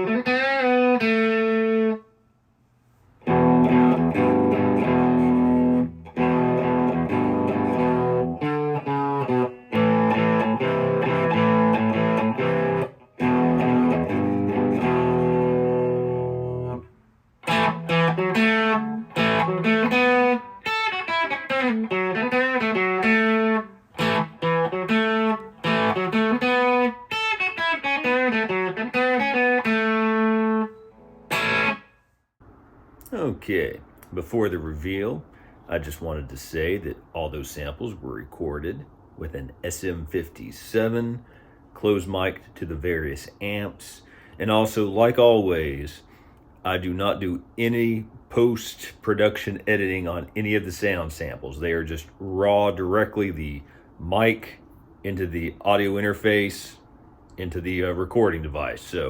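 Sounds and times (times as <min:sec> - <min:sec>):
electric guitar chords: 0:00.0 - 0:02.0, 0:03.2 - 0:32.0
electric guitar lead lines: 0:00.0 - 0:02.0, 0:03.2 - 0:32.0.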